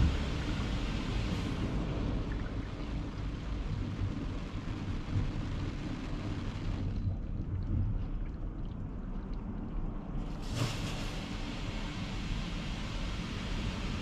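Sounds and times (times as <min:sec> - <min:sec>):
car wash rushing: 0:00.0 - 0:06.6, 0:10.4 - 0:14.0.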